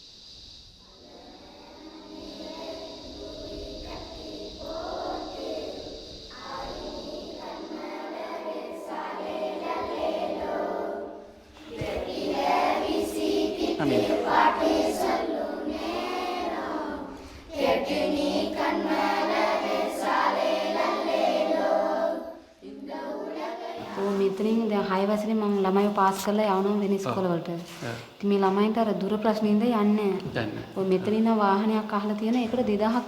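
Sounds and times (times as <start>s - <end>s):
children singing in chorus: 0.9s - 24.3s.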